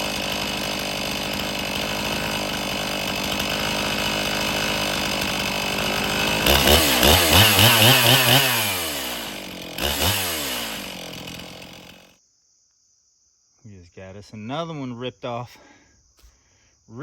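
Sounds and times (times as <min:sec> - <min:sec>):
chainsaw cutting log: 0:00.0 - 0:12.1.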